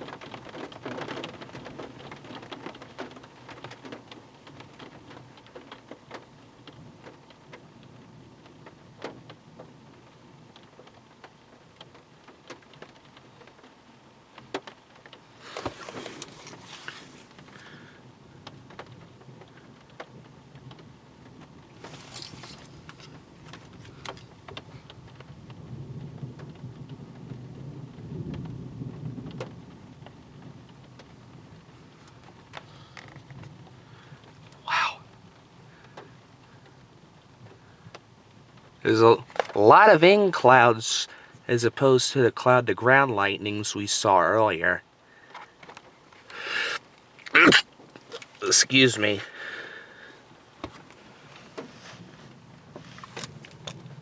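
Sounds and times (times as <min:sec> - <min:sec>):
rain falling: 0:00.0 - 0:54.0
low rumble of thunder: 0:22.5 - 0:35.8, 0:52.0 - 0:54.0.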